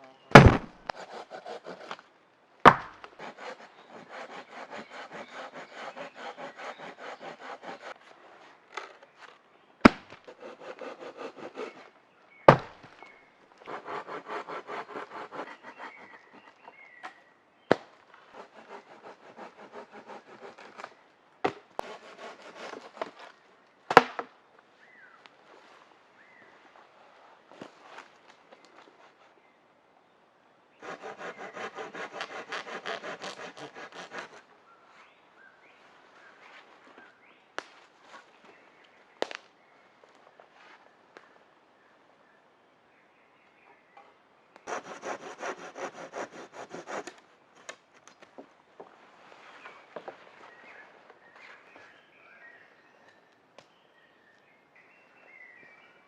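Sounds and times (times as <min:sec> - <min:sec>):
wood cracking: 0:00.3 - 0:02.0, 0:30.8 - 0:34.4
hand saw cutting wood: 0:00.4 - 0:02.0, 0:03.1 - 0:08.0, 0:10.3 - 0:11.9, 0:13.7 - 0:16.6, 0:18.3 - 0:20.9, 0:21.8 - 0:23.3, 0:30.8 - 0:34.5, 0:44.7 - 0:47.2.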